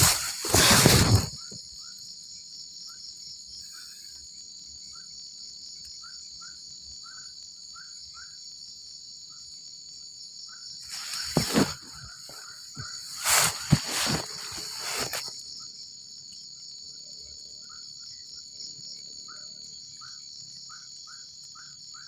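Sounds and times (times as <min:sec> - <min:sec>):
rustling noise: 0:00.0 - 0:01.6, 0:10.9 - 0:15.4
crickets buzzing: 0:00.0 - 0:22.0.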